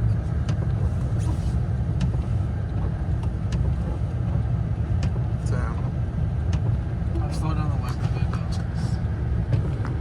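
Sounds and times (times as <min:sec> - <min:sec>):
road and engine rumble: 0:00.0 - 0:10.0
windshield wipers clicking: 0:00.4 - 0:04.4.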